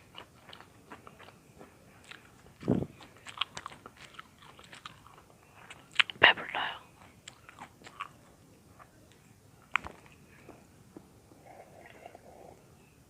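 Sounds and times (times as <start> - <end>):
chewing crunchy bread: 0.0 - 10.6.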